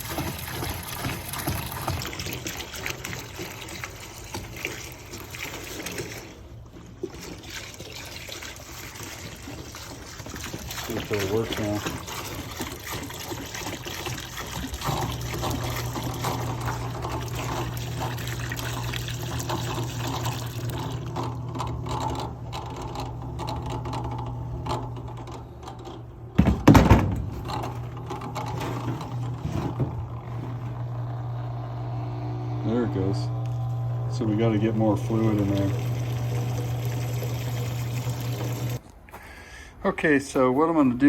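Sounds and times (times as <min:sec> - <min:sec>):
fluid splashing and trickling: 0:00.0 - 0:24.0, 0:34.3 - 0:38.8
pump humming: 0:00.0 - 0:38.8.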